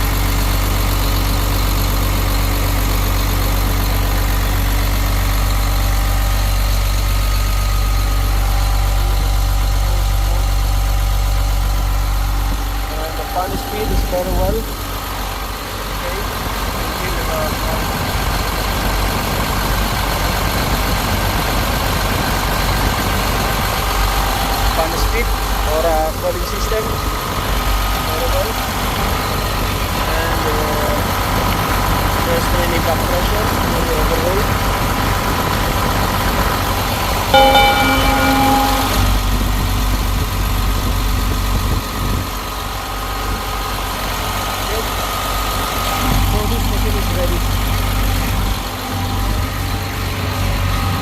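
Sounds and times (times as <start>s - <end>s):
cooling fan turning: 0.0s - 51.0s
diesel engine idling: 0.0s - 51.0s
loud pitched tone: 12.3s - 15.5s, 36.8s - 39.9s.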